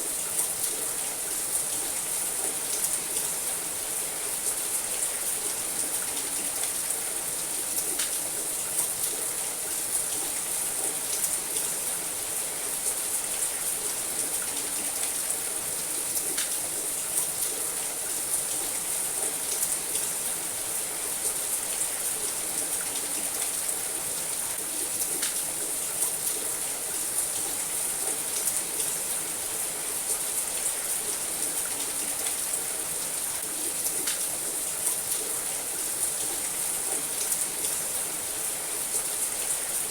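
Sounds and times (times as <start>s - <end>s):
rain on a roof: 0.0s - 39.9s.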